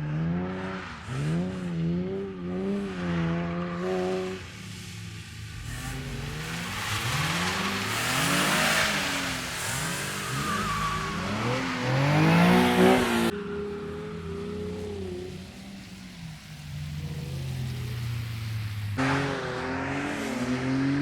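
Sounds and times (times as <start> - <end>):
car engine revving hard: 0.0 - 13.3, 16.9 - 21.0
broad rushing noise: 4.2 - 13.4.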